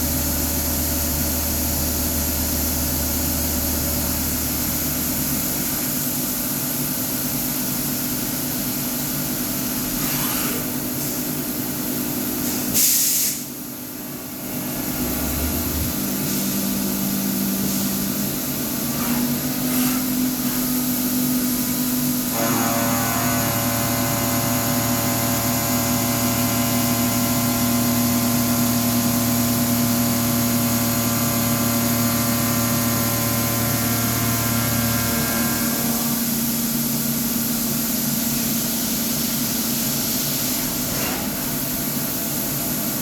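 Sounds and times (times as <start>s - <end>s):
cnc mill machine drone: 14.5s - 39.5s.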